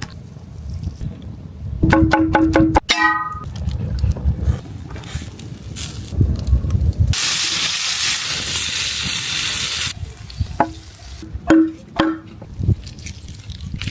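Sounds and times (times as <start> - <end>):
meat sizzling over embers: 4.6 - 11.3.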